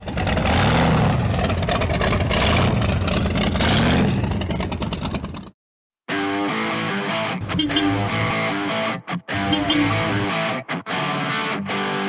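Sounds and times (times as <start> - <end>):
car engine revving: 0.0 - 5.5, 7.4 - 8.3, 9.4 - 10.3
exhaust rattle: 0.0 - 5.5, 7.4 - 8.3, 9.4 - 10.2.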